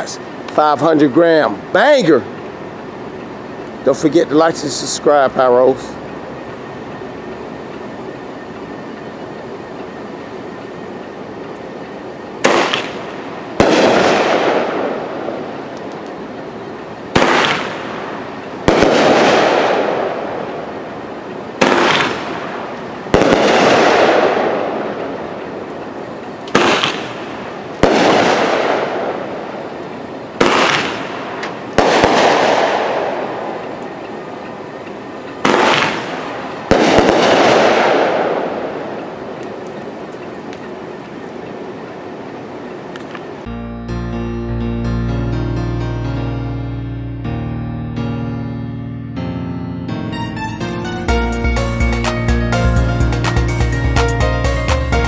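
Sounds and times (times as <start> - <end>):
firework launch thumps: 12.4 - 14.6, 17.2 - 18.0, 21.6 - 22.5, 26.5 - 27.2, 30.4 - 32.8, 35.4 - 38.2
firework bursts: 12.4 - 41.5.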